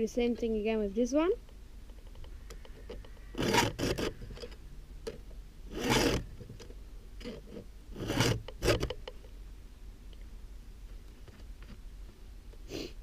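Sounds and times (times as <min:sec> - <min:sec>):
file rasping on saw chain: 0:03.4 - 0:04.4, 0:05.7 - 0:06.3, 0:07.2 - 0:09.0.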